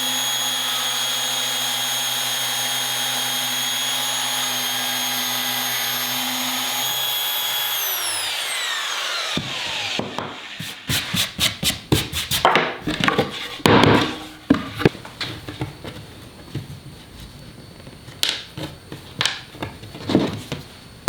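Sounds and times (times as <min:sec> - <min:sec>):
power tool motor winding down: 0:00.0 - 0:10.6
wood knocking and scraping: 0:09.3 - 0:17.3.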